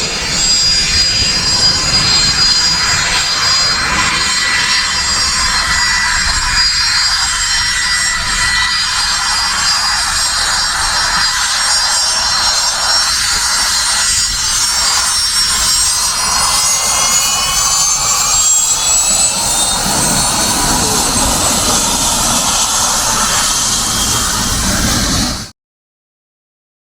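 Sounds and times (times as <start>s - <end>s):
jet engines whining at taxi: 0.0s - 25.5s.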